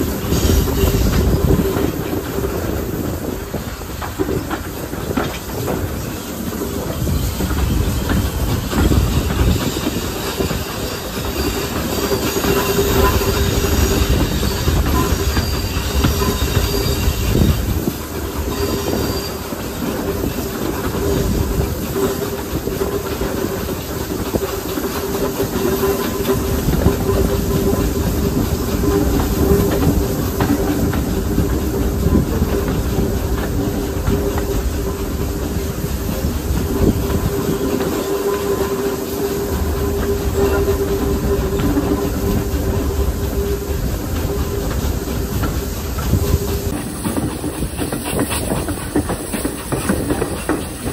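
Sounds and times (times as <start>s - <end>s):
steam hissing: 0.0s - 50.9s
train wheels rumbling: 0.0s - 50.9s
steady squealing tone: 6.8s - 21.7s, 25.1s - 50.9s.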